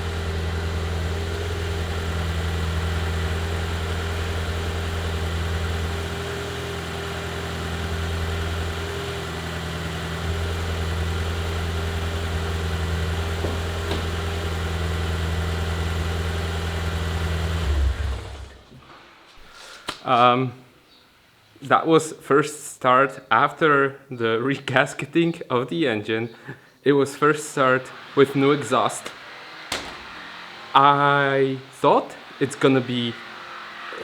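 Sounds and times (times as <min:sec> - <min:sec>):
car engine idling: 0:00.0 - 0:18.7.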